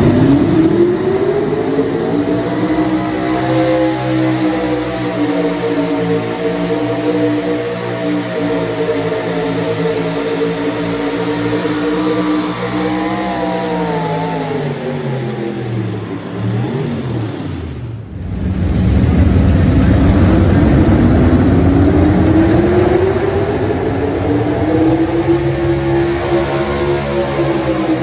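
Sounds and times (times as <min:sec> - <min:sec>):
truck engine at full throttle: 0:00.0 - 0:28.0
wavering sinking pitch sound: 0:10.2 - 0:17.5.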